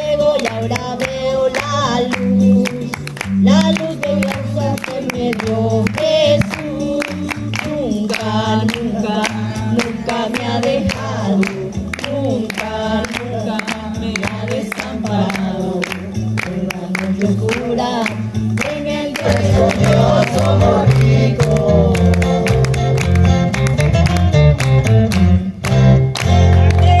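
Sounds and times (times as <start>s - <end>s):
woman singing: 0.0s - 20.9s
accompaniment with bass line: 0.0s - 27.0s.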